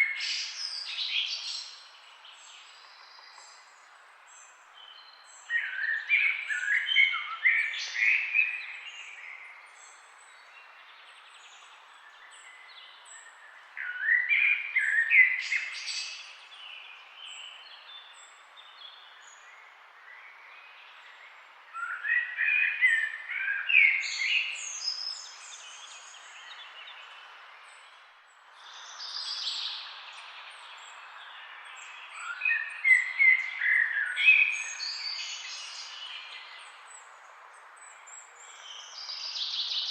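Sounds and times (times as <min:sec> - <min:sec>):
background hiss: 0:07.5 - 0:39.9
bird warbling song: 0:20.5 - 0:28.0, 0:28.6 - 0:37.2.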